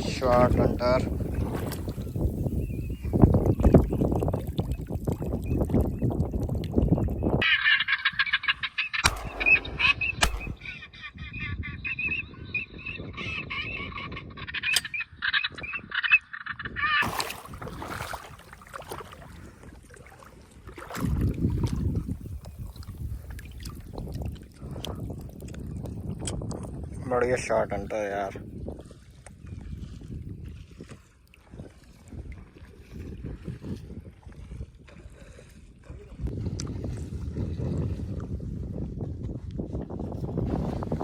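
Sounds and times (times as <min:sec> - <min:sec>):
ducks quacking: 0:07.4 - 0:12.2
sharp cracks: 0:09.0 - 0:10.8.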